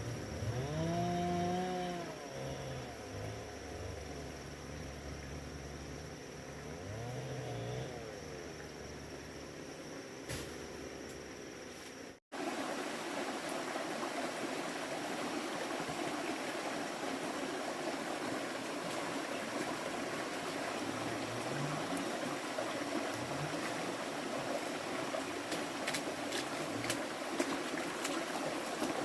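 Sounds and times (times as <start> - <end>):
stream water rushing: 12.3 - 29.0.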